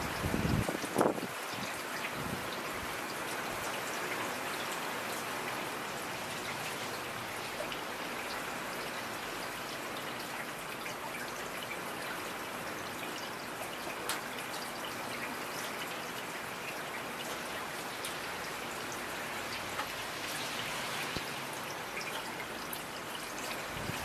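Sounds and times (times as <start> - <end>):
steady rain hiss: 0.0 - 24.0
raindrop ticks: 13.7 - 15.9, 16.7 - 20.4.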